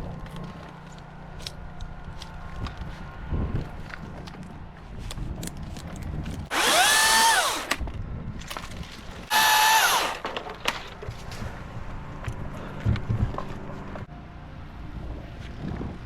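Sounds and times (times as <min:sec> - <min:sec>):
electric chainsaw motor whine: 0:06.5 - 0:07.8, 0:09.3 - 0:10.3.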